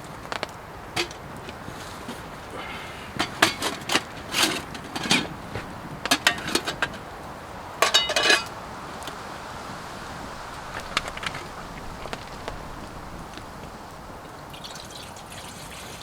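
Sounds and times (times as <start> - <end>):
metal cookware clanking: 1.0 - 1.2, 3.2 - 5.4, 6.1 - 7.0, 7.8 - 8.5.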